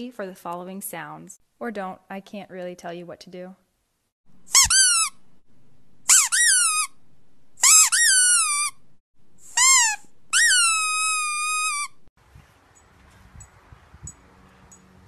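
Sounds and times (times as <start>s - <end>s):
high-pitched squeaks: 4.5s - 5.2s, 6.1s - 7.0s, 7.6s - 8.8s, 9.4s - 12.1s.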